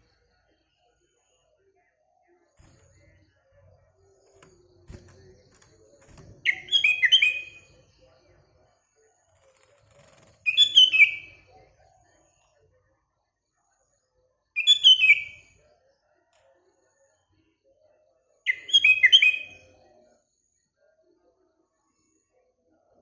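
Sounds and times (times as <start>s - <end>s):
bird singing falling notes: 4.3s - 7.7s.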